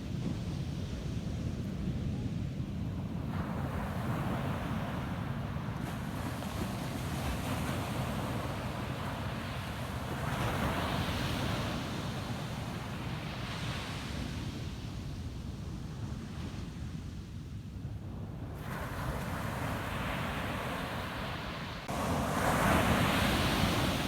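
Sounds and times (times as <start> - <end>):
ocean surf breaking: 19.2 - 24.0.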